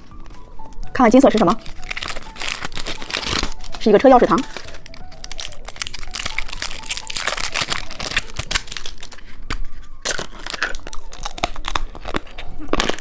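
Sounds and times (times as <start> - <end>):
plastic wrapper crinkling and tearing: 0.0 - 13.0.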